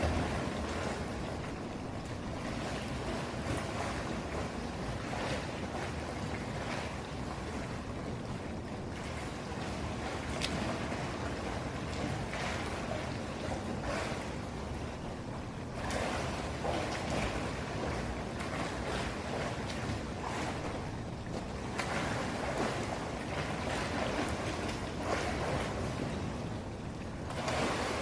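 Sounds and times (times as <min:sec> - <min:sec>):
swimmer splashing in pool: 0:27.2 - 0:28.0.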